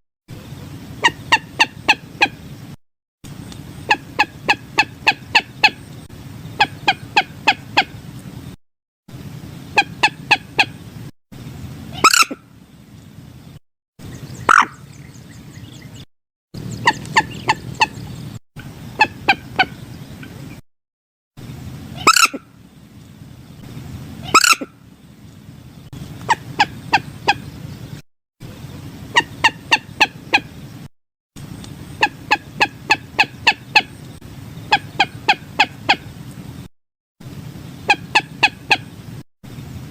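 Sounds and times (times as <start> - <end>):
moorhen clucking calls: 1.0 - 2.5, 3.4 - 8.1, 9.7 - 10.9, 11.9 - 12.5, 14.0 - 16.0, 16.6 - 20.6, 21.9 - 22.5, 24.2 - 24.8, 25.9 - 27.7, 28.5 - 30.6, 31.5 - 36.2, 37.8 - 39.0.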